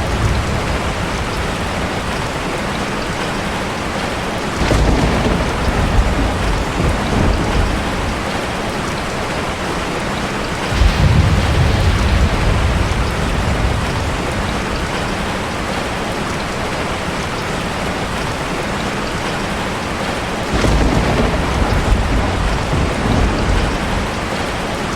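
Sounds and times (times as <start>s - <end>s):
thunder rumbling: 0.0s - 2.8s, 4.6s - 9.9s, 10.5s - 17.0s, 20.4s - 24.9s
heavy rain pouring: 0.0s - 24.9s.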